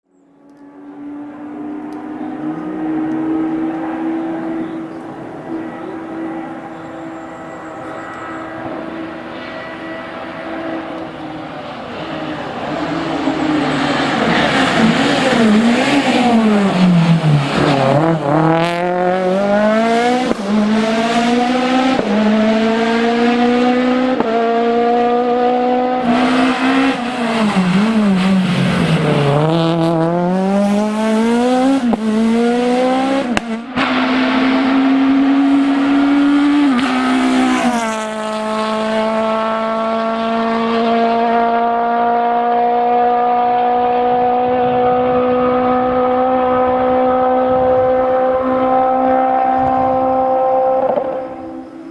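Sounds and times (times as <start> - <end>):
rally car engine revving: 0.4 - 51.9
tyre squeal: 5.6 - 10.9.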